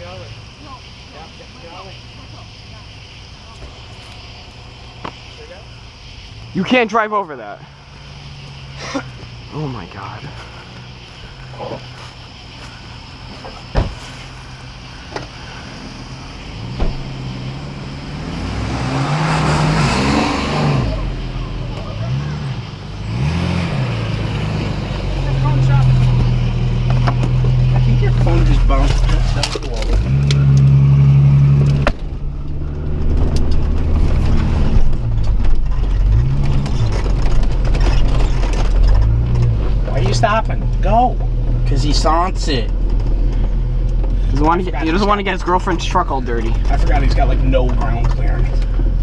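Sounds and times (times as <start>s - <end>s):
car engine revving: 0.0s - 49.0s
body knocks and rattles: 13.3s - 14.4s, 31.7s - 41.6s.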